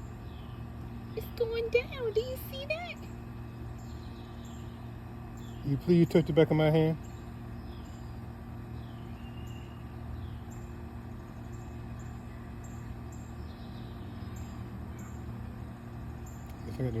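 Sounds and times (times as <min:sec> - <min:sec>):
distant traffic hum: 0:00.0 - 0:17.0
faint bird chirps: 0:07.0 - 0:15.3.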